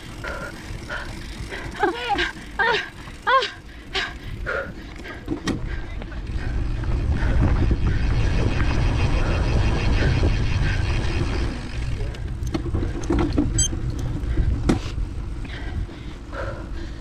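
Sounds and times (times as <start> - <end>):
bike rattling clicks and knocks: 0.0 - 9.2, 9.8 - 15.5
bike tyre noise: 0.0 - 17.0
wind rumble on microphone: 4.1 - 17.0.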